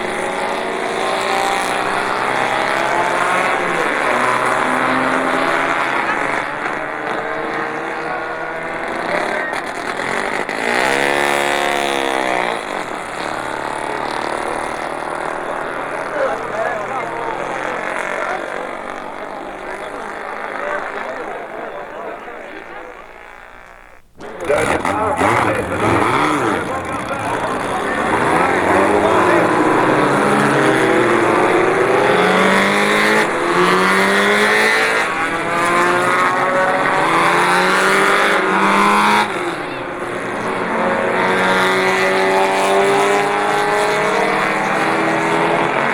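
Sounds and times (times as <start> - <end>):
motorcycle engine accelerating: 0.0 - 45.9
motorcycle engine running: 23.0 - 41.3.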